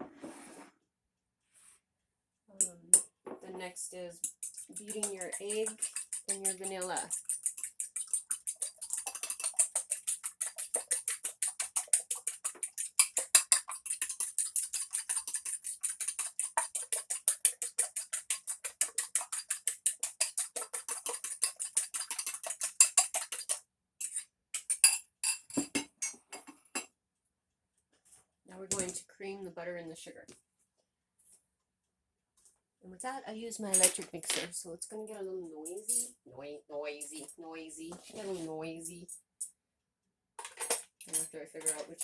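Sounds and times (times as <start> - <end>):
utensil clinking against bowl: 4.2 - 26.9, 40.4 - 42.0.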